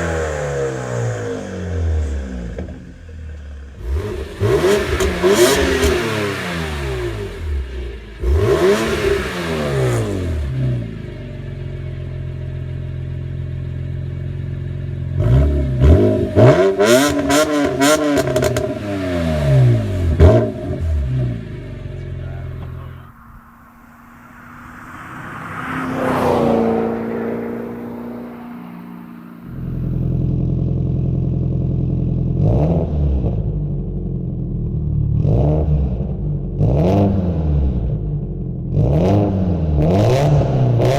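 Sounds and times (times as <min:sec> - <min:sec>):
car engine idling: 0:00.0 - 0:26.2, 0:26.8 - 0:32.5
car engines revving: 0:00.0 - 0:40.9.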